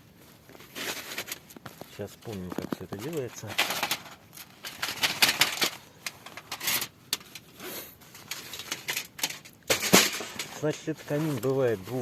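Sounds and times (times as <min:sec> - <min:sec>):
rustling: 0:00.0 - 0:12.0
metal sheets clanking: 0:08.4 - 0:11.3.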